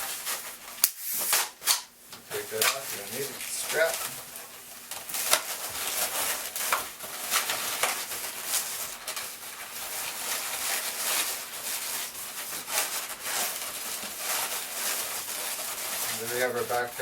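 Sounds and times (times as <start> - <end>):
balloons rubbing together: 0.0 - 1.6, 2.3 - 17.0.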